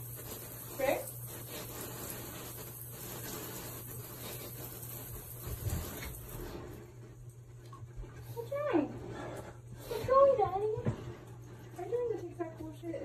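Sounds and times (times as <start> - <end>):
shower spray hissing: 0.0 - 6.9.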